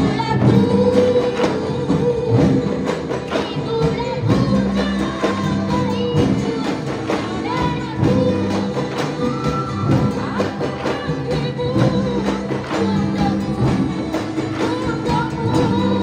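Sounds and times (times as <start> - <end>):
live band music: 0.0 - 16.0
person singing: 0.0 - 16.0
steady drum beat: 0.0 - 16.0.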